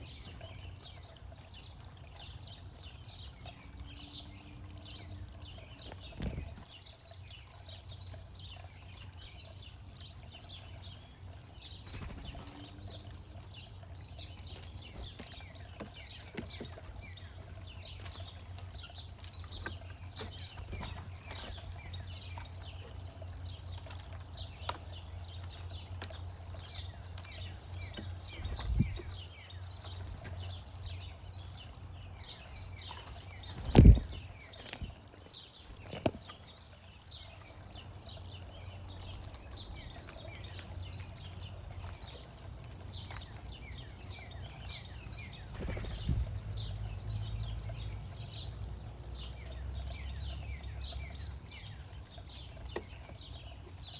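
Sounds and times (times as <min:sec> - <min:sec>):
songbirds chirping: 0:00.0 - 0:53.9.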